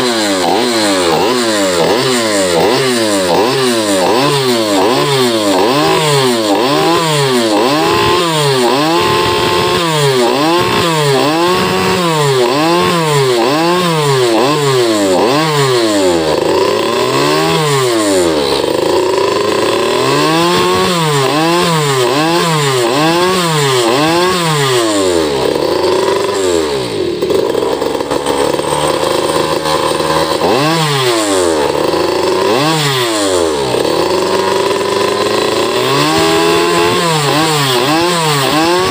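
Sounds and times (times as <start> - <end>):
scooter engine revving: 0.0 - 38.9.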